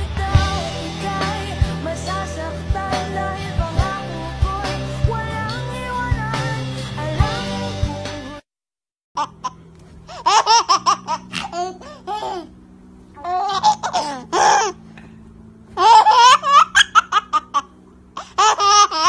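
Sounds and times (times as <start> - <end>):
baby giggling: 9.2 - 12.6, 13.2 - 14.8, 15.7 - 19.0
faint steady hum: 9.2 - 19.0.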